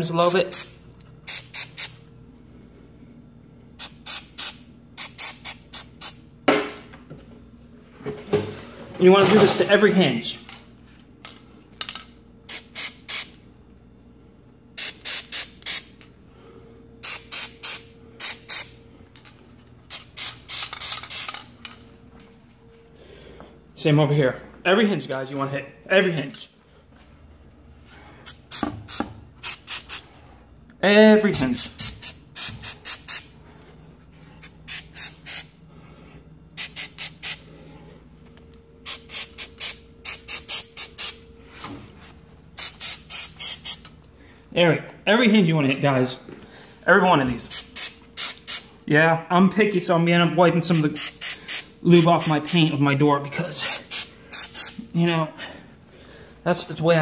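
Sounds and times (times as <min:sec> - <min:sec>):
aerosol spray hissing: 0:00.2 - 0:02.0, 0:14.8 - 0:15.9, 0:34.7 - 0:35.5, 0:36.6 - 0:37.4, 0:42.6 - 0:43.8, 0:50.7 - 0:52.6, 0:53.7 - 0:54.8.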